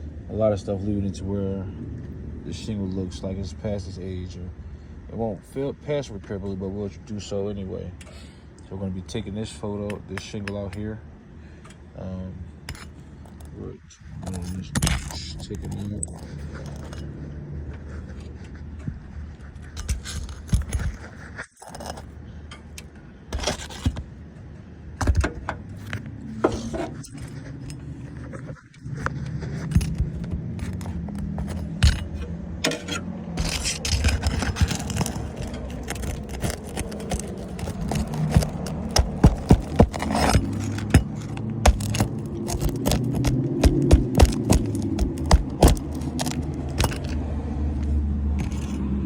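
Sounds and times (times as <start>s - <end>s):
roof shingle scraping: 12.6s - 24.4s, 25.0s - 48.9s.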